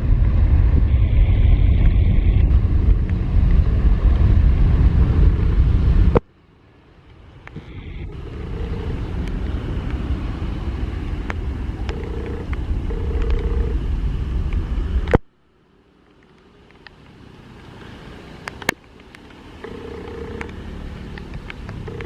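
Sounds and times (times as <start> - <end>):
airliner rumble: 0.0 - 15.3
faint hum: 0.0 - 16.9, 19.5 - 22.0.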